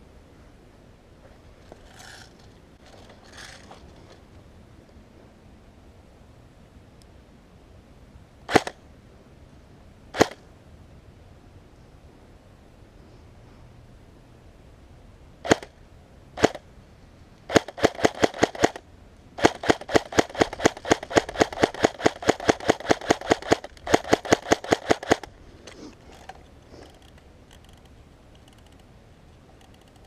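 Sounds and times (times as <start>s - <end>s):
airsoft gun shots: 8.5s - 8.8s, 10.2s - 10.4s, 15.4s - 15.7s, 16.4s - 16.6s, 17.5s - 18.8s, 19.4s - 25.3s.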